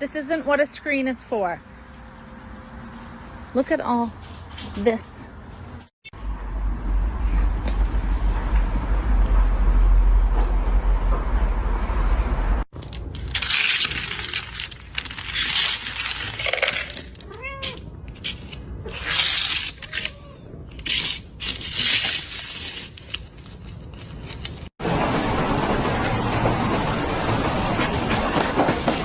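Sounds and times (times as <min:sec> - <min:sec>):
cat meowing: 0:17.2 - 0:17.9, 0:19.8 - 0:20.7.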